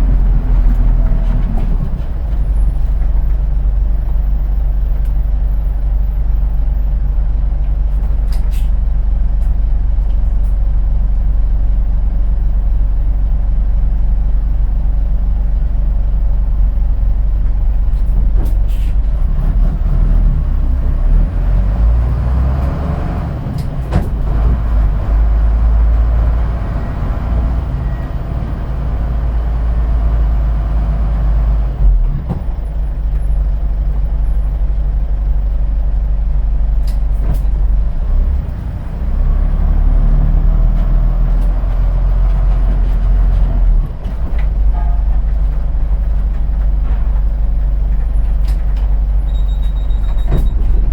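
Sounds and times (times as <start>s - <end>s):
bus diesel engine: 0.0s - 50.9s
road noise: 0.0s - 50.9s
air brake hisses: 18.7s - 19.0s
thump: 23.8s - 24.3s.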